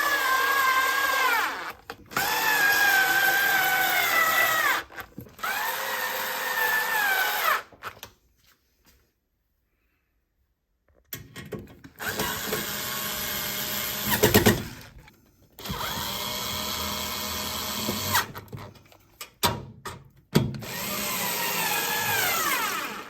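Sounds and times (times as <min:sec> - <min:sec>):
cordless drill whining: 0:00.0 - 0:07.8, 0:12.0 - 0:18.5, 0:20.6 - 0:23.0.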